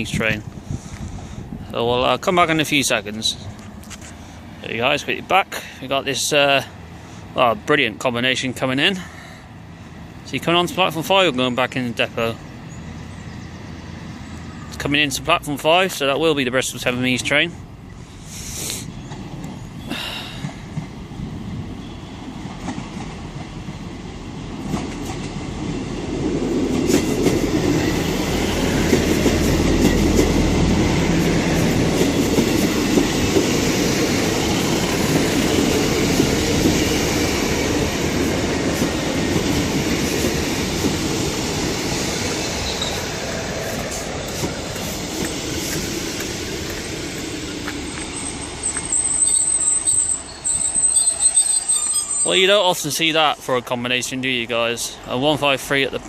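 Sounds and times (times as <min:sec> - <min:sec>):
diesel train engines running: 0:00.0 - 0:56.0
train wheels clacking on rail joints: 0:22.4 - 0:23.9, 0:24.6 - 0:49.0
thin high squeal: 0:48.1 - 0:52.4.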